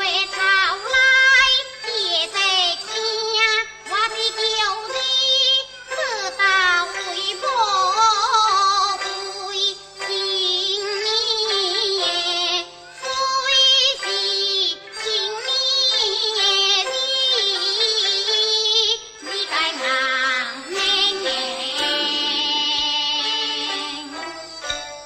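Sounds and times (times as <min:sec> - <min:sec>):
instrumental accompaniment: 0:00.0 - 0:25.0
person singing opera: 0:19.2 - 0:24.8.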